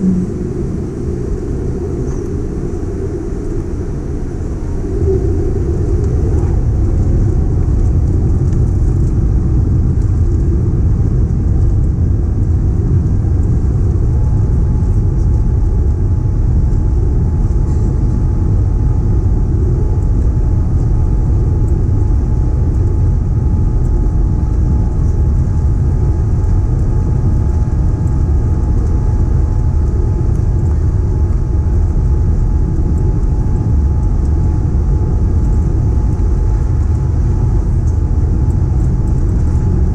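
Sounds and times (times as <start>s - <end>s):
faint steady engine tones: 0.0s - 39.9s
jet engines rumbling in cabin: 0.0s - 39.9s.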